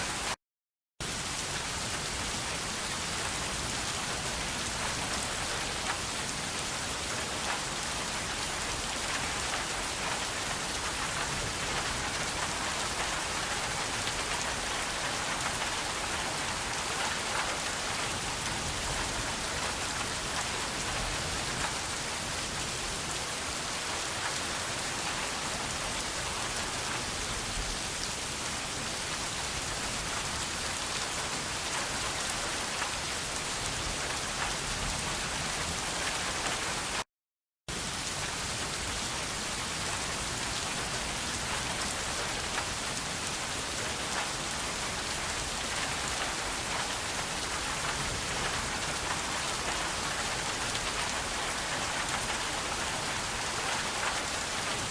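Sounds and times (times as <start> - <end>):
rain pattering: 1.0 - 37.0, 37.7 - 54.9.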